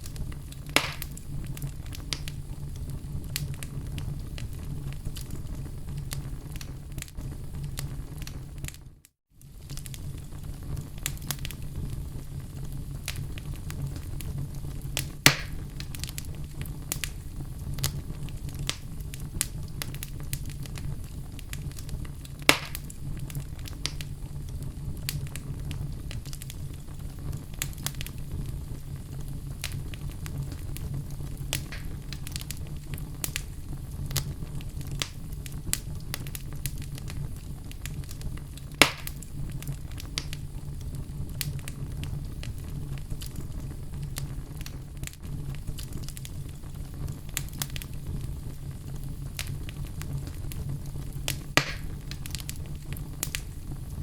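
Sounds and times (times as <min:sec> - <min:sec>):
fireplace fire crackling: 0:00.0 - 0:54.0
logs popping: 0:00.1 - 0:02.4, 0:15.0 - 0:16.3, 0:22.4 - 0:23.0, 0:29.6 - 0:32.6, 0:37.9 - 0:39.3, 0:51.3 - 0:53.5.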